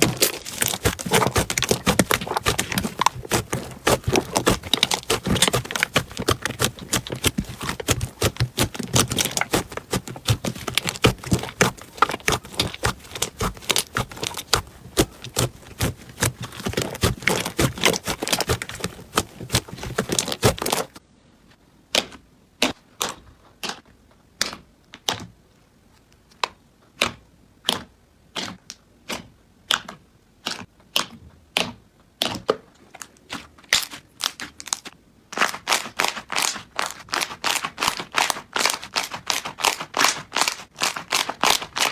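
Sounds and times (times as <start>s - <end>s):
crunchy slime crackling: 0.0s - 21.0s, 33.7s - 41.9s.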